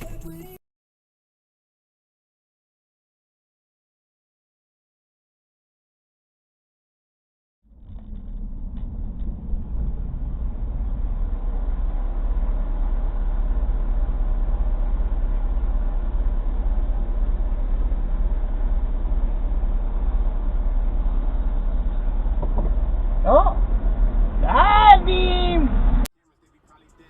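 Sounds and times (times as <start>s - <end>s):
car engine and road noise: 0.0s - 0.6s, 7.7s - 27.0s.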